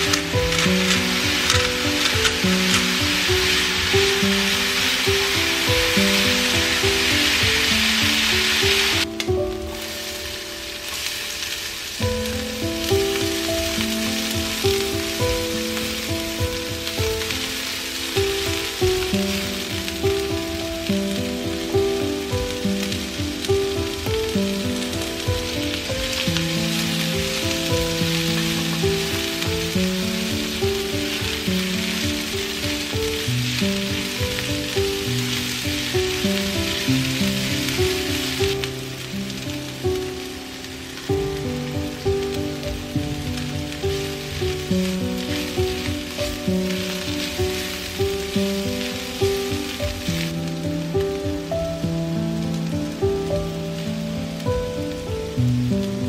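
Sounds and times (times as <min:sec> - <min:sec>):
background music: 0:00.0 - 0:56.0
meat sizzling in a pan: 0:00.0 - 0:56.0.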